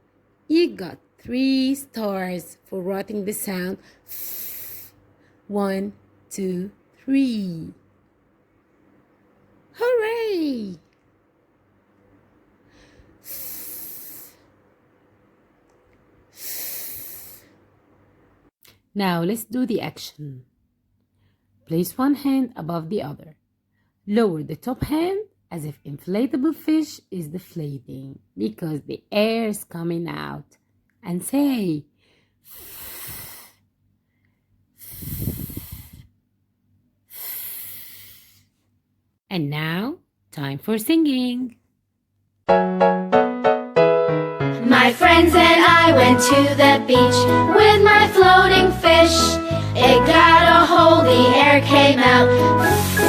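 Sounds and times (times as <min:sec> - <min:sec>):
person making breathy f sound: 0:04.1 - 0:05.0, 0:12.8 - 0:14.5, 0:16.3 - 0:17.5, 0:32.5 - 0:33.6, 0:34.8 - 0:36.1, 0:37.1 - 0:38.5
woman making fff sound: 0:34.8 - 0:36.1.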